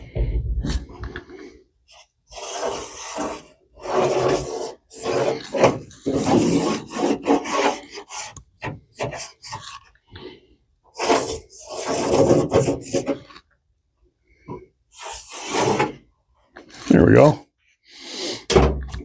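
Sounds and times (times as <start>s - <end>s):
marker scraping on rusty metal: 1.9s - 9.8s, 10.9s - 13.4s, 14.9s - 16.0s.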